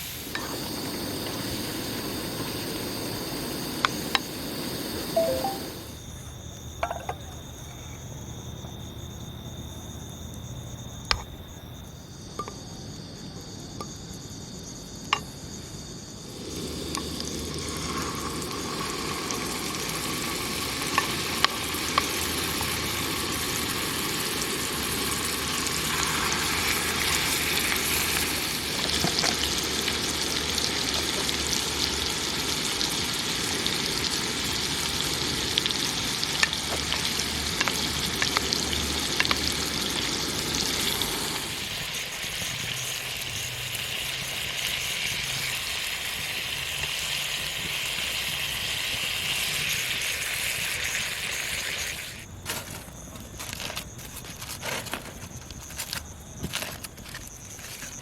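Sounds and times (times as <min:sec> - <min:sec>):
steady noisy hiss: 0:00.0 - 0:58.0
steady high tones: 0:05.1 - 0:06.0.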